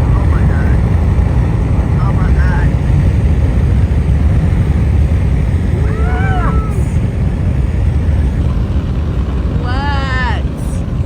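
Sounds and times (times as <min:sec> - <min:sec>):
car road and engine rumble: 0:00.0 - 0:11.0
person exclaiming: 0:05.7 - 0:07.0.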